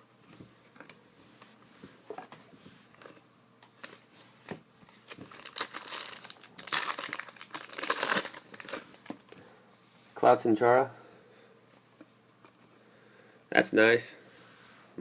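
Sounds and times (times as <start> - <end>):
wrapper crinkling and tearing: 4.9 - 9.2.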